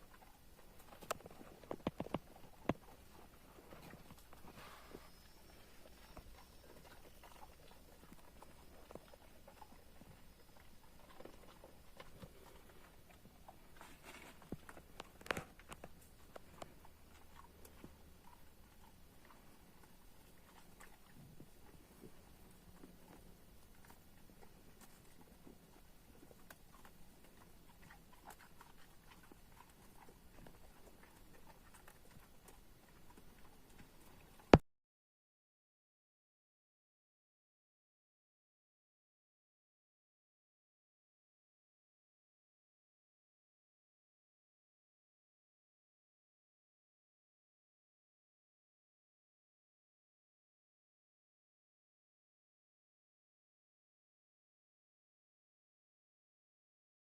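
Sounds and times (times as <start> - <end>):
goats and sheep moving and feeding: 0.0 - 34.6.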